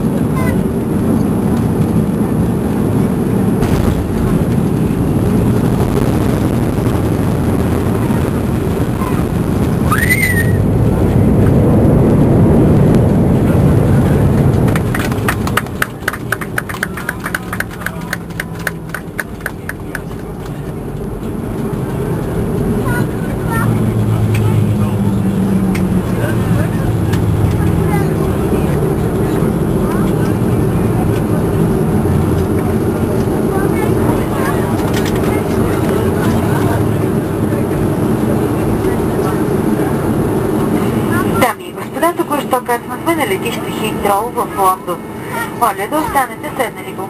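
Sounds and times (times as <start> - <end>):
jet engines and airflow rumble: 0.0 - 47.0
wheels knocking on runway: 14.0 - 21.0.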